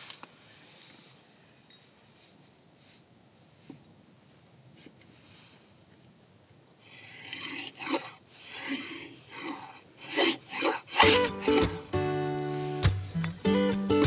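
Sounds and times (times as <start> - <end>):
rhythmic rasping scrapes: 6.8 - 13.3
acoustic guitar music: 10.9 - 14.0.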